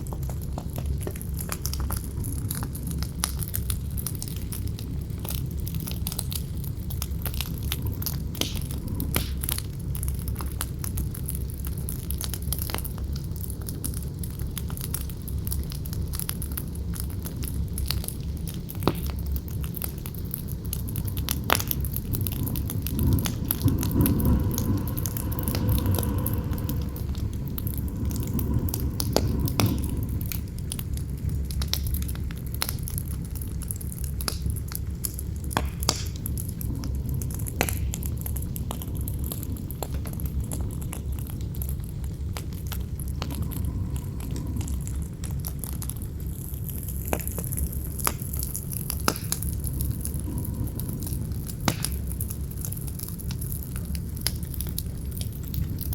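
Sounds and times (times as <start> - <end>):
campfire crackling and popping: 0.0 - 55.9
wind rumbling: 0.0 - 55.9
howling wind gust: 5.1 - 11.1, 19.7 - 32.6, 35.0 - 47.1, 48.7 - 52.6.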